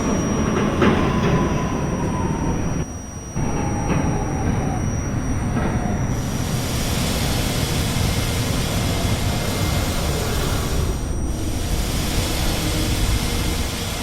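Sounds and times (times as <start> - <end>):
subway train wheels rumbling on rail: 0.0 - 14.0
hissing rush: 3.4 - 14.0.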